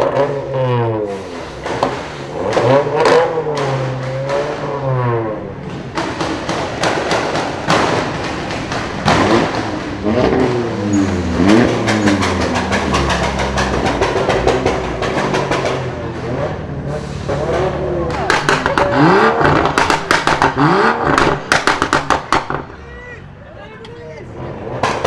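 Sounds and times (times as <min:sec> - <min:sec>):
car engines idling and revving: 0:00.0 - 0:25.0
exhaust cracks and pops: 0:05.6 - 0:16.6, 0:17.3 - 0:22.8.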